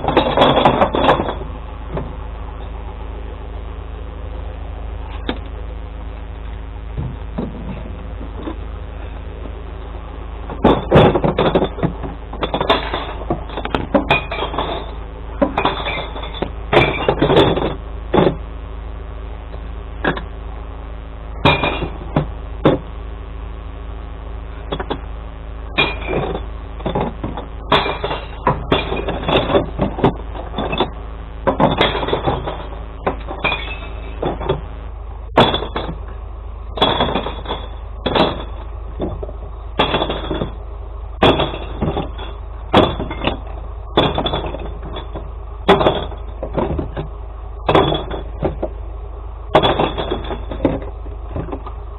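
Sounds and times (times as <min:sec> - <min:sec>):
glass bottles crashing: 0:00.0 - 0:01.4, 0:10.6 - 0:18.4, 0:21.4 - 0:22.8, 0:25.8 - 0:34.6, 0:35.4 - 0:36.0, 0:36.8 - 0:39.2, 0:39.8 - 0:40.6, 0:41.2 - 0:47.1, 0:47.7 - 0:48.7, 0:49.5 - 0:51.6
truck engine idling: 0:00.0 - 0:51.9.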